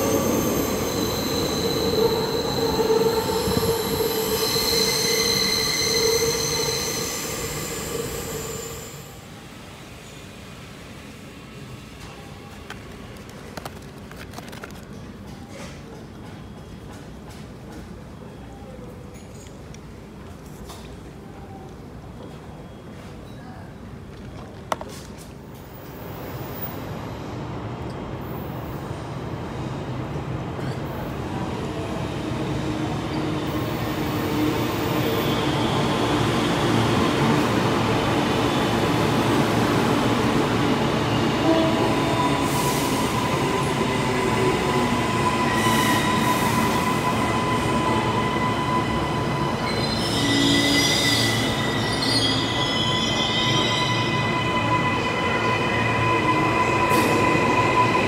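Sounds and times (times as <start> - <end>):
train moving: 0.0 - 18.3, 24.4 - 58.0
wheel squeal: 0.2 - 9.0, 45.2 - 58.0.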